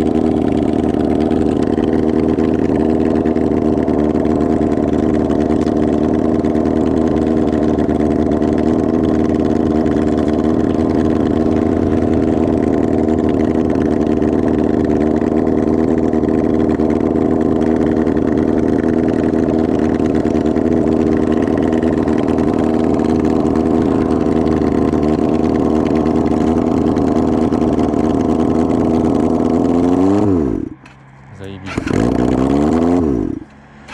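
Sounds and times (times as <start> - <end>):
motorcycle engine running unmuffled: 0.0 - 33.9.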